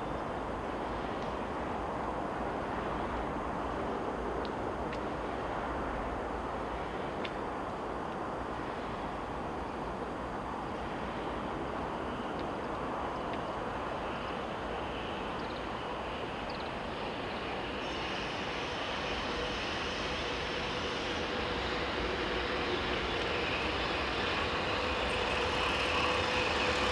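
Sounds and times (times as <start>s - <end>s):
train wheels rumbling on rail: 0.0s - 26.9s
steady whine: 7.7s - 26.9s.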